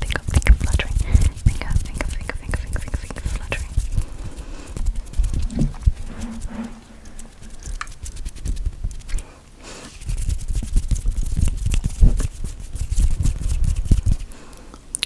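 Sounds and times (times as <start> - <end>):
fingers tapping on microphone: 0.0 - 3.8.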